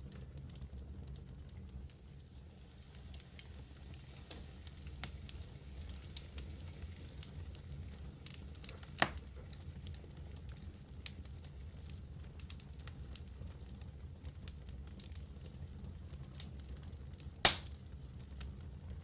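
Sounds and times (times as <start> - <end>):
wood fire crackling: 0.0 - 19.0
loud pop of fire: 8.9 - 9.3, 17.4 - 17.8.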